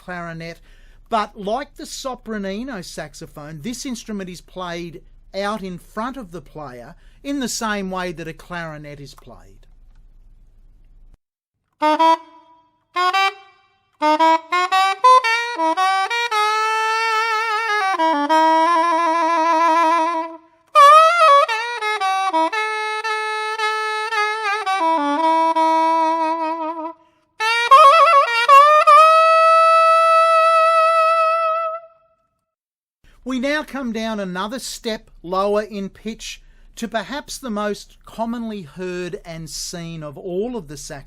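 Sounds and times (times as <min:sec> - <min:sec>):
soprano saxophone melody: 0:11.7 - 0:32.2.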